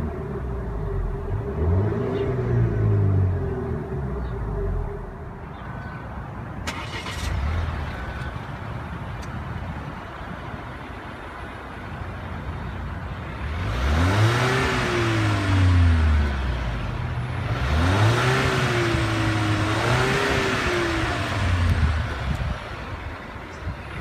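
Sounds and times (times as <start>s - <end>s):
car engine revving: 0.0s - 5.1s, 6.7s - 8.2s, 13.4s - 24.0s.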